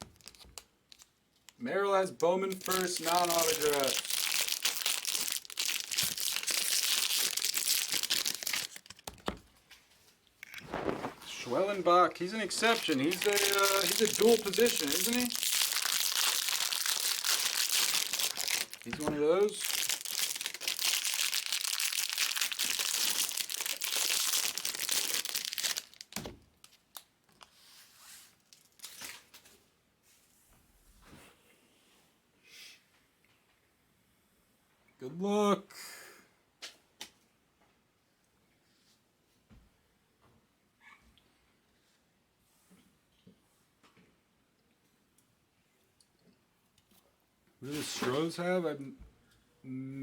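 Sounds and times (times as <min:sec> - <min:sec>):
wrappers crinkling and tearing: 0:00.0 - 0:01.6, 0:02.4 - 0:09.1, 0:10.4 - 0:27.5, 0:28.5 - 0:29.4.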